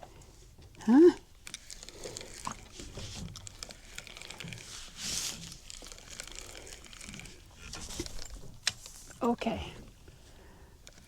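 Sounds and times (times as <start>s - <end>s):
small clicks: 1.4s - 4.7s
close rustling and crinkling: 1.4s - 11.0s.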